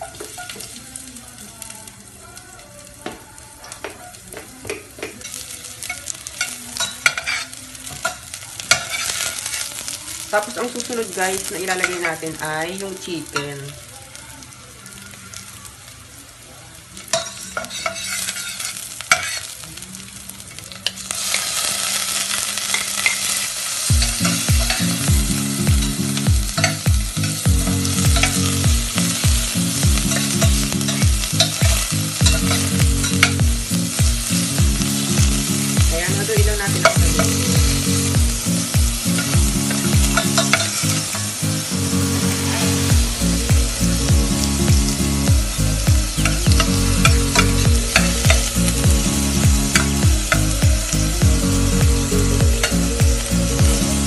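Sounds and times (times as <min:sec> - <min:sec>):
chicken sizzling in hot oil: 0:00.0 - 0:54.0
metal spatula stirring in pot: 0:17.1 - 0:19.5.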